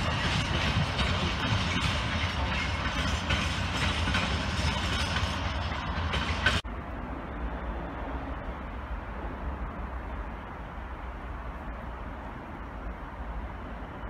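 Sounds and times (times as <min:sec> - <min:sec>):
outdoor background: 0:00.0 - 0:14.0
train running on rails: 0:00.0 - 0:14.0.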